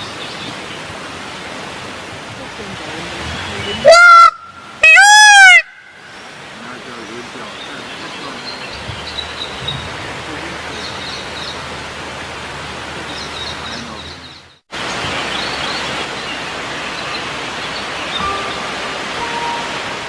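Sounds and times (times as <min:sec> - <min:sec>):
small birds chirping: 0:06.1 - 0:11.9, 0:12.9 - 0:18.8.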